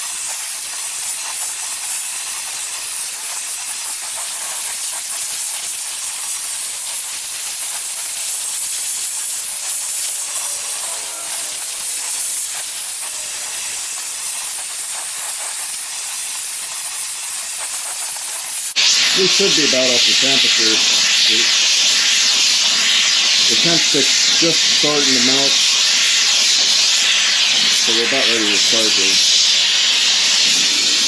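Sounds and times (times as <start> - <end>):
gas torch flame hissing: 0.0 - 31.0.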